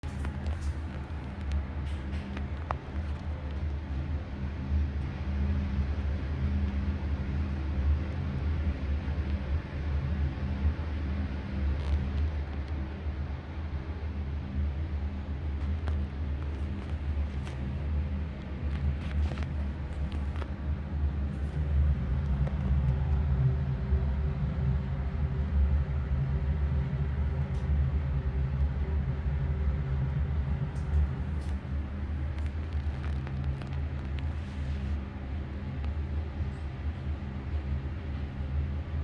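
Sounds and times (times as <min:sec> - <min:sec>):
exhaust fan humming: 0:00.0 - 0:08.1, 0:30.4 - 0:38.2.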